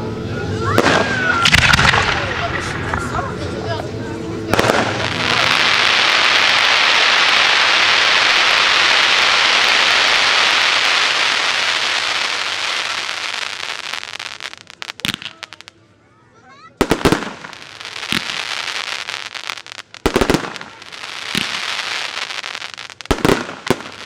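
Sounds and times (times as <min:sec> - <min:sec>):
fireworks crackling: 0:00.6 - 0:16.0, 0:16.7 - 0:24.0
loud firework bang: 0:00.7 - 0:03.5, 0:04.5 - 0:13.0, 0:23.1 - 0:24.0
sharp firework pops: 0:00.8 - 0:03.2, 0:04.5 - 0:06.2, 0:14.8 - 0:15.6, 0:16.8 - 0:18.9, 0:19.6 - 0:24.0.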